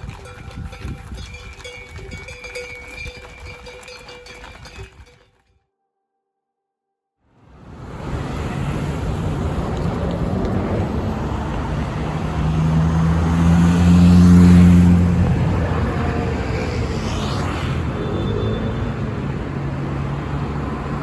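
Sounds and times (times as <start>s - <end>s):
road traffic noise: 0.0s - 5.2s, 7.3s - 21.0s
vehicle engine passing: 7.5s - 21.0s.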